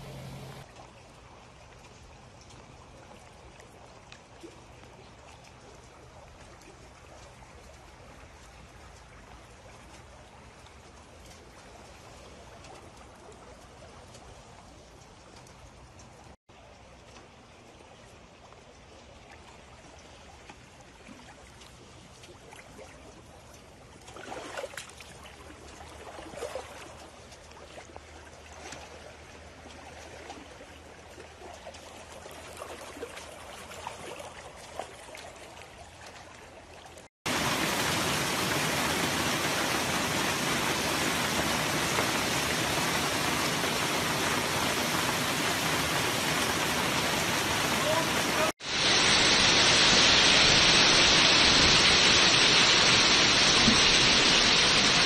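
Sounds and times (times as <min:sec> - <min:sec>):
heavy rain hiss: 0:00.0 - 0:00.6, 0:37.3 - 0:55.0
rushing water: 0:00.0 - 0:55.0
drips and splashes: 0:00.2 - 0:55.0.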